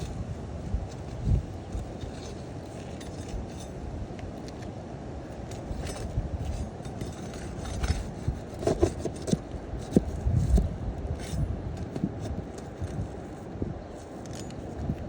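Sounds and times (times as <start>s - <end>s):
pry bar scraping shingles: 5.3s - 15.0s
squeaking scrapes: 5.6s - 14.7s.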